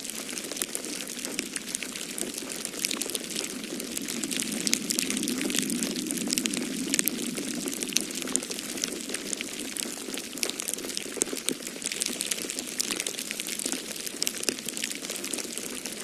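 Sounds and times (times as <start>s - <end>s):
wood fire crackling and popping: 0.0s - 16.0s
storm wind rushing: 2.6s - 10.1s.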